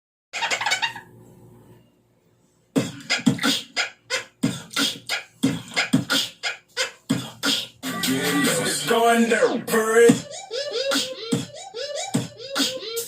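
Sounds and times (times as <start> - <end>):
beatboxing: 2.8 - 13.0.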